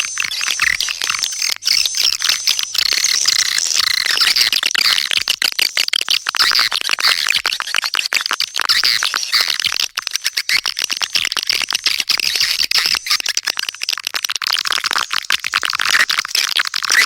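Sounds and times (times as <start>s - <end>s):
swiftlets twittering: 0.0s - 5.3s.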